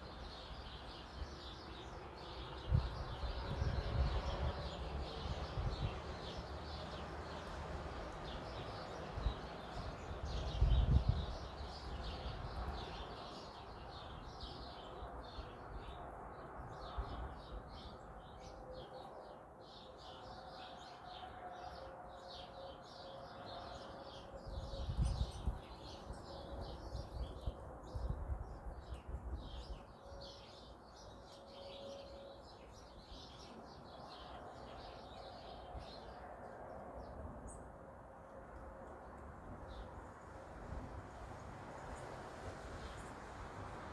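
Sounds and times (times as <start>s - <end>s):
flock of small birds chirping: 0.0s - 37.7s, 39.0s - 40.4s, 41.4s - 43.9s.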